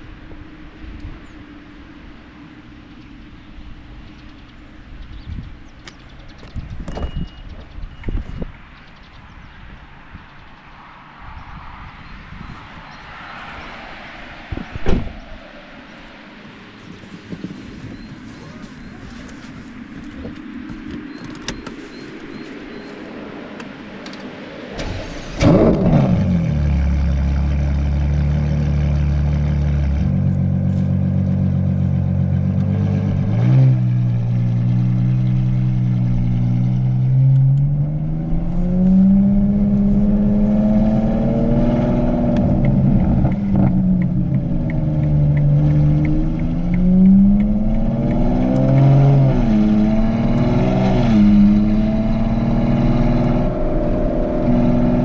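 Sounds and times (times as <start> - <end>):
car engine starting and idling: 16.0 - 55.0.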